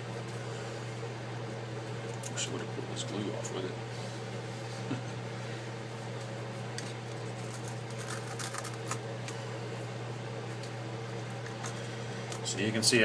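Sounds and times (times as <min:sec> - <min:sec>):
steady low hum: 0:00.0 - 0:13.0
small clicks and scrapes: 0:06.8 - 0:09.0.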